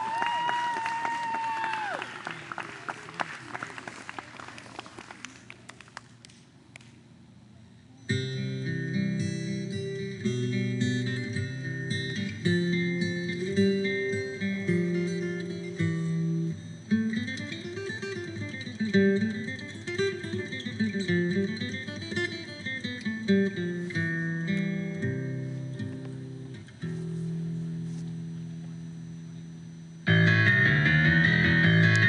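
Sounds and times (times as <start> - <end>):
acoustic guitar music: 8.1 - 32.0.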